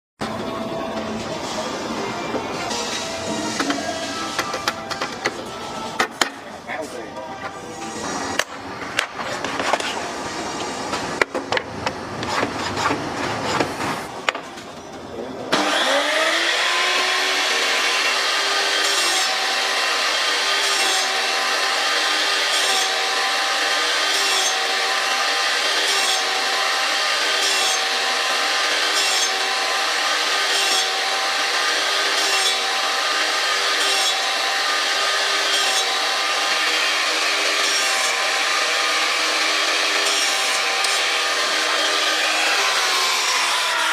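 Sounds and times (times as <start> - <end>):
saw cutting wood: 1.4 - 6.9, 7.5 - 14.4, 15.5 - 43.9
table saw motor humming: 15.5 - 43.9.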